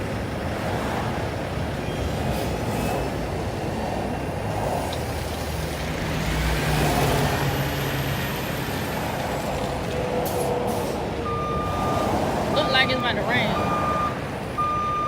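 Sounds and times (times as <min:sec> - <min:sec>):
heavy truck engines: 0:00.0 - 0:15.0
road traffic: 0:00.0 - 0:15.0
truck reversing beeper: 0:11.2 - 0:15.0.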